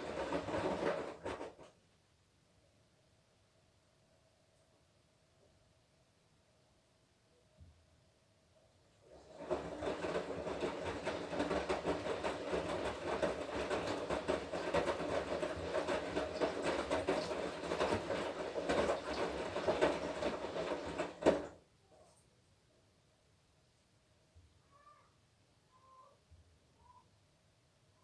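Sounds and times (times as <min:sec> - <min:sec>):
washing machine drum churning: 0:00.0 - 0:01.7, 0:09.0 - 0:21.6.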